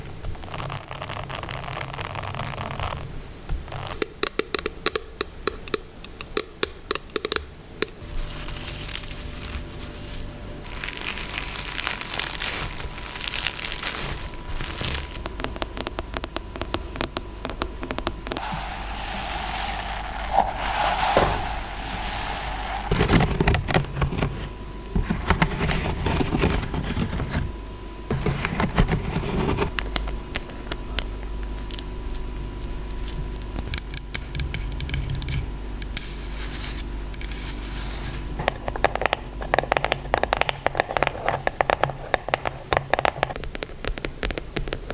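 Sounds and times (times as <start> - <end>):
scratching on objects: 8.0 - 17.1, 18.3 - 30.5, 34.4 - 44.9.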